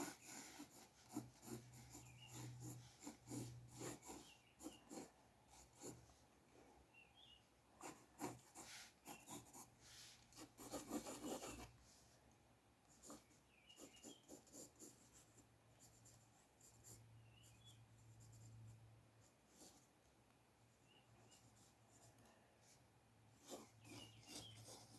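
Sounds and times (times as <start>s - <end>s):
pencil scratching on paper: 0.0s - 6.1s, 7.8s - 12.0s, 12.9s - 18.6s, 19.2s - 19.9s, 23.4s - 24.9s.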